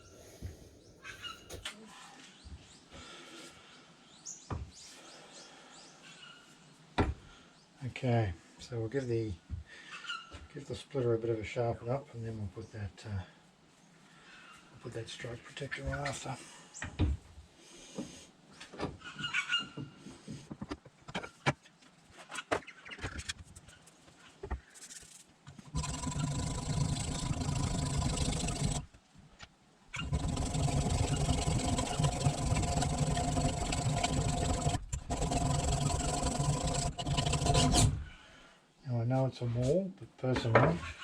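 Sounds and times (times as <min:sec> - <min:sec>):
blade sharpening grating: 0:33.0 - 0:38.0.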